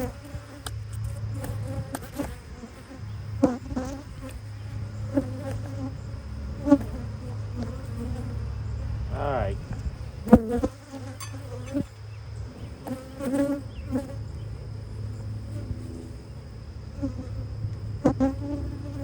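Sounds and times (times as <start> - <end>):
honeybee swarm buzzing: 0.0 - 14.4.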